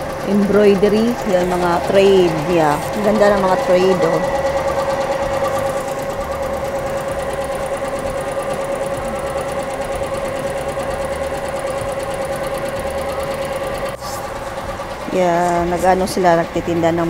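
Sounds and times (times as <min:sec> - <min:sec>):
embroidery machine stitching: 0:00.0 - 0:17.0.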